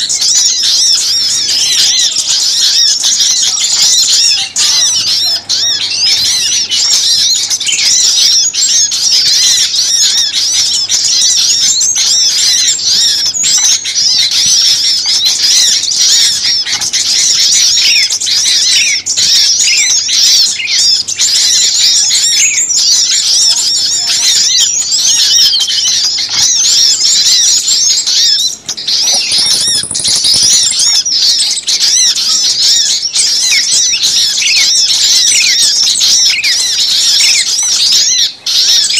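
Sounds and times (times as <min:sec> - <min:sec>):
small songbirds chirping: 0:00.0 - 0:38.9.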